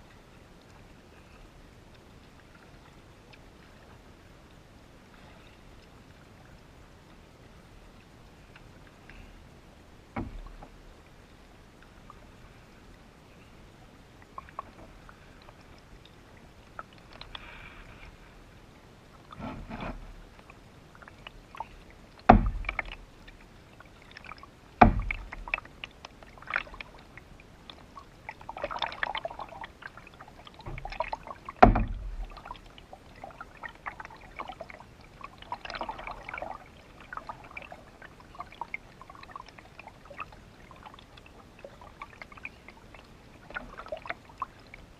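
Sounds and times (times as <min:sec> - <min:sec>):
paddle splashing and dripping: 0:00.0 - 0:44.9
loud hollow knocks: 0:22.3 - 0:22.8, 0:24.8 - 0:25.3, 0:31.6 - 0:32.2.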